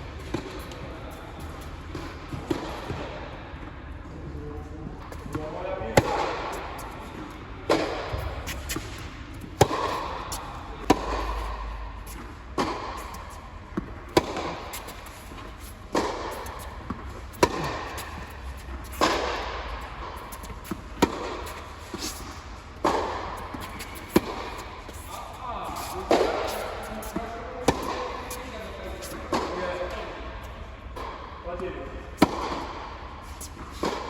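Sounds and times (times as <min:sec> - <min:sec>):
tennis ball bouncing: 0:00.2 - 0:00.8, 0:01.9 - 0:03.1, 0:06.0 - 0:28.4, 0:29.0 - 0:29.9, 0:32.2 - 0:34.0
racquets hitting tennis ball: 0:00.2 - 0:03.2, 0:06.0 - 0:31.3, 0:32.2 - 0:34.0.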